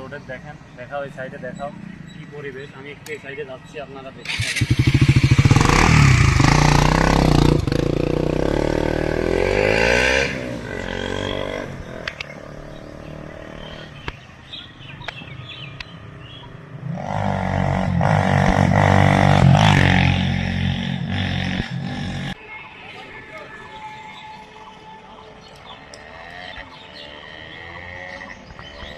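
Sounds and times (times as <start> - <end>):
motorcycle engine revving: 4.2 - 14.1, 16.7 - 22.4, 26.0 - 28.9.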